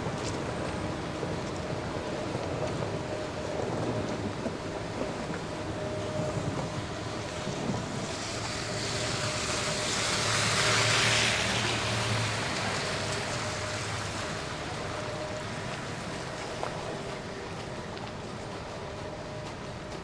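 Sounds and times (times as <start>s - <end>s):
low hum of street traffic: 0.0s - 20.0s
tyre hiss on slushy street: 6.7s - 20.0s.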